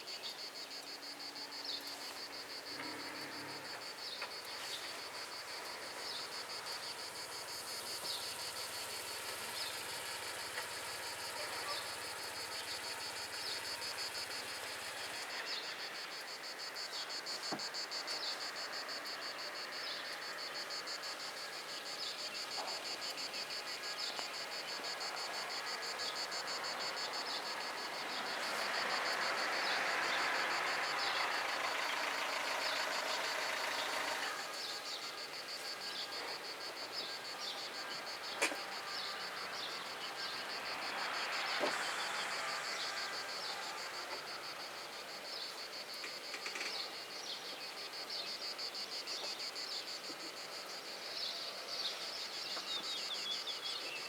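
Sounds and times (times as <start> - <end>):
cicadas buzzing: 0.0 - 54.0
vehicle passing: 25.5 - 34.8, 39.2 - 44.9.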